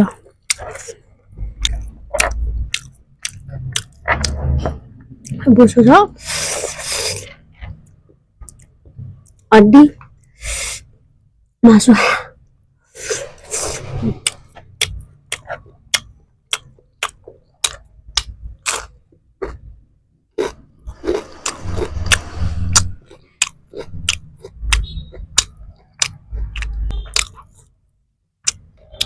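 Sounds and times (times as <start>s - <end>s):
chips crunching while chewed: 20.4s - 27.7s.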